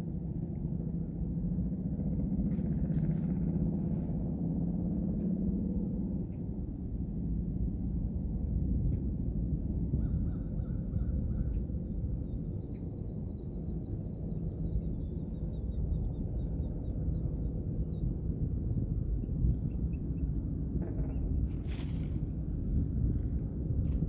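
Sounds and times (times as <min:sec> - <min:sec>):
steady low rumble: 0:21.3 - 0:24.0.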